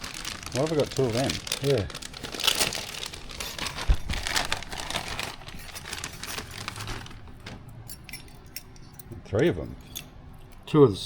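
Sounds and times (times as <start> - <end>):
packaging rustling and crumpling: 0.0 - 7.6.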